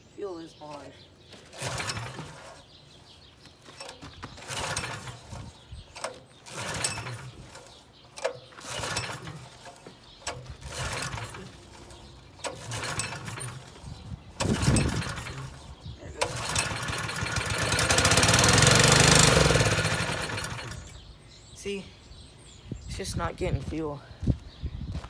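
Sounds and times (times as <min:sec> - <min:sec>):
engine recoil starter cranking: 0:01.4 - 0:02.8, 0:03.7 - 0:21.0.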